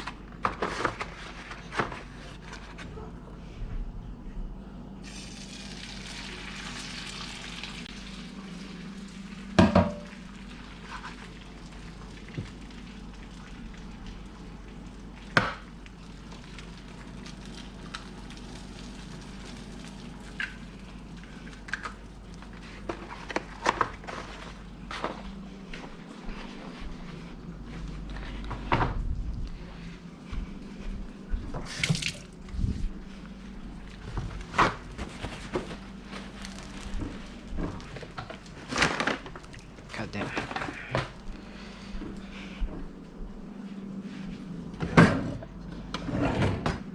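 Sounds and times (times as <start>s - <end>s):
egg sizzling in a pan: 5.0s - 9.6s, 16.2s - 20.9s.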